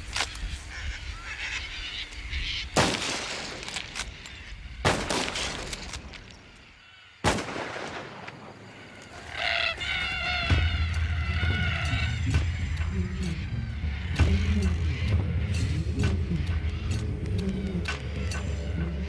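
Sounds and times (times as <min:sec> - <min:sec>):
rifle shots cracking: 0:02.8 - 0:04.0, 0:04.8 - 0:06.1, 0:07.2 - 0:08.7
cockatoos screeching: 0:08.6 - 0:19.0.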